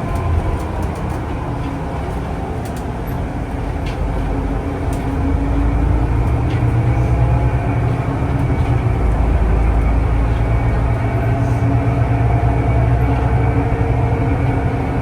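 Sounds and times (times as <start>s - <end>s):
vehicle rumble from on board: 0.0s - 15.0s.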